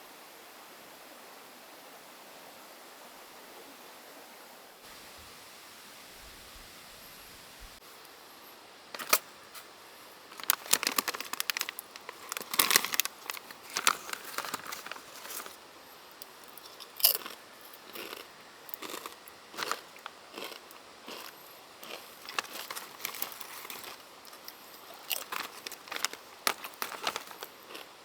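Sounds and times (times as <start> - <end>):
crinkling and rustling: 8.9 - 9.7, 10.3 - 15.6, 21.8 - 28.0.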